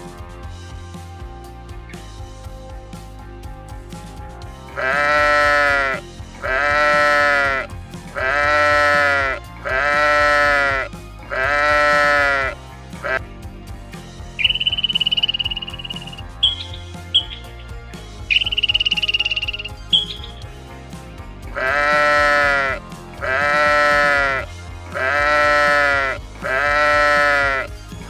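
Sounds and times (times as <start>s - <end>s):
long even animal call: 4.8s - 13.2s, 21.6s - 27.7s
high fast-pulsing trill: 14.4s - 17.6s, 18.3s - 20.4s.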